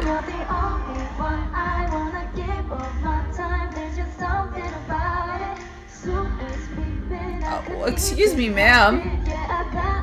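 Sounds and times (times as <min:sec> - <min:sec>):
backing track with heavy bass: 0:00.0 - 0:03.6
women singing pop song: 0:00.0 - 0:10.0.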